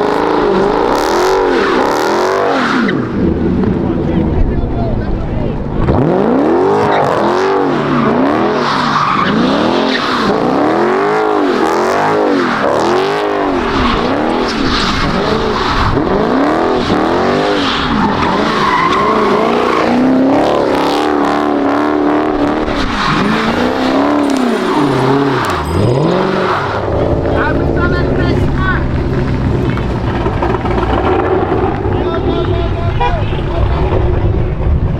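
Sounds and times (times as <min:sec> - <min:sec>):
car engine revving: 0:00.0 - 0:34.9
tyres squealing: 0:13.3 - 0:21.0, 0:22.7 - 0:33.4.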